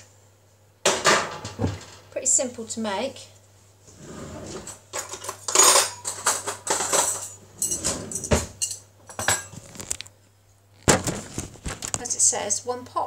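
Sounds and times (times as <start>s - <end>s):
cutlery clinking on plate and pan: 4.9s - 9.6s.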